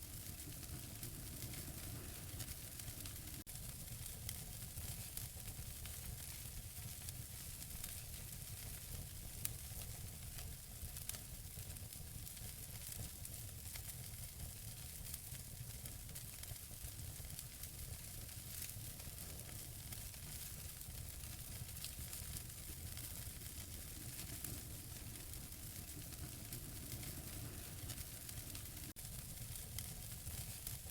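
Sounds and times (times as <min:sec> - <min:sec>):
low steady rumble: 0:00.0 - 0:03.4, 0:22.5 - 0:29.0
wood fire crackling and popping: 0:00.0 - 0:30.9.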